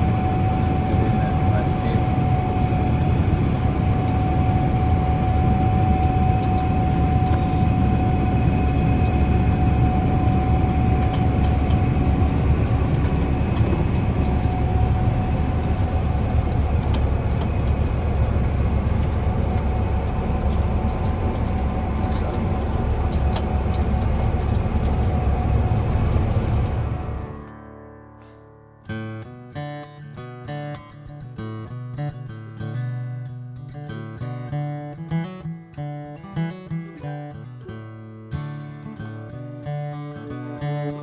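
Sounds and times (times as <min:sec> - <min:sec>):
vehicle engine drone: 0:00.0 - 0:27.5
constant whine: 0:00.0 - 0:28.4.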